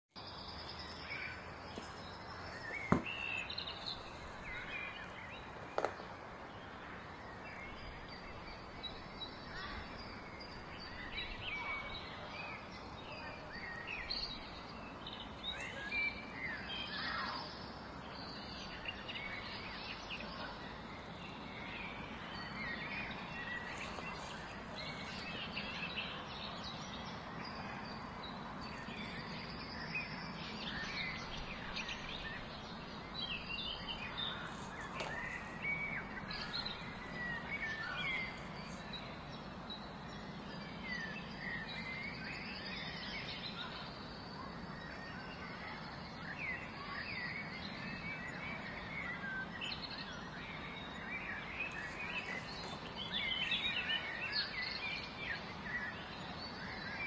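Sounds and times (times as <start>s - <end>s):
birds chirping: 0.2s - 57.0s.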